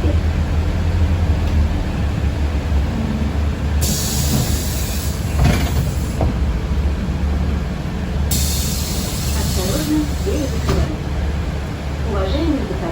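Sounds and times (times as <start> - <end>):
bus interior rumble: 0.0 - 12.9
hiss: 3.8 - 6.2, 8.3 - 10.8.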